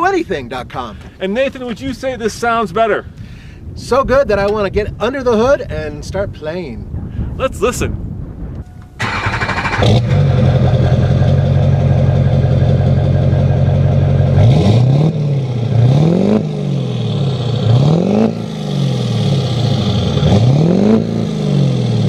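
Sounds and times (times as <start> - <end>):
diesel truck engine idling and revving: 9.0 - 22.0.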